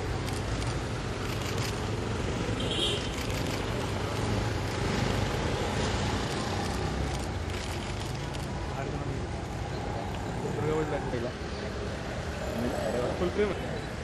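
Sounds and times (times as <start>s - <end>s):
traffic: 0.0s - 14.0s.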